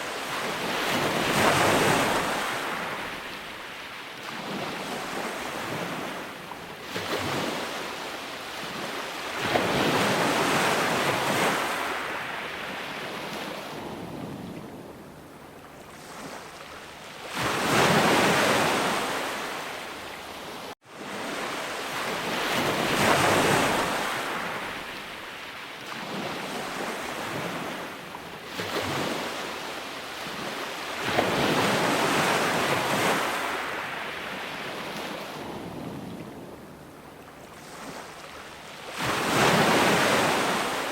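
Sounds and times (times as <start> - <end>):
sea waves breaking on shore: 0.0 - 40.9.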